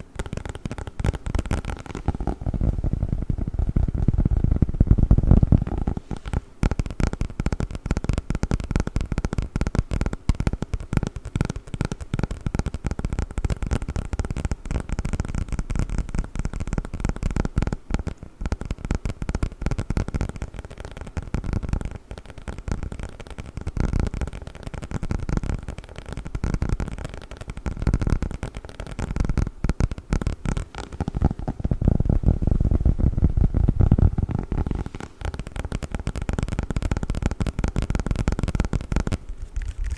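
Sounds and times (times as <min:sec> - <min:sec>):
foam packaging crackling: 0:27.9 - 0:39.9.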